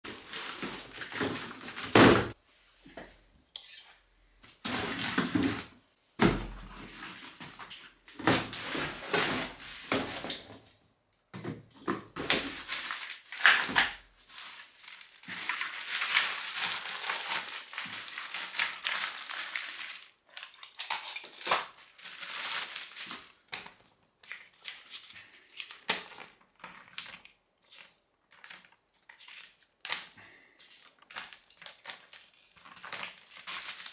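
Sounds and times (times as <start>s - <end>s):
packaging rustling: 12.2s - 20.2s, 21.8s - 23.7s, 31.0s - 33.9s
metal parts knocking and clinking: 20.3s - 21.7s.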